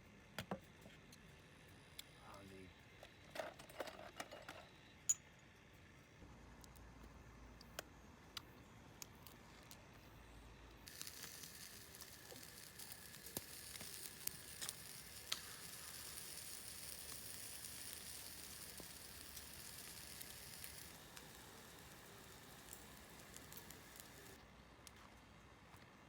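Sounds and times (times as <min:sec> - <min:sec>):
meat sizzling over fire: 0:10.8 - 0:24.4.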